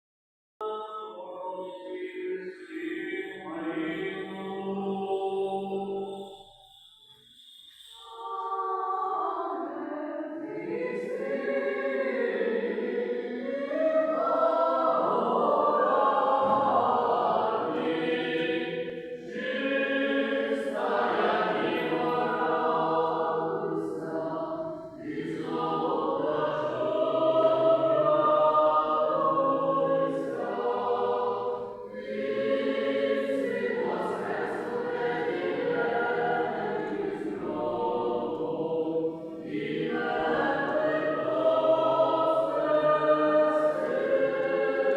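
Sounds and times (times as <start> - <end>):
choir chanting: 0.6 - 6.8, 7.8 - 44.9.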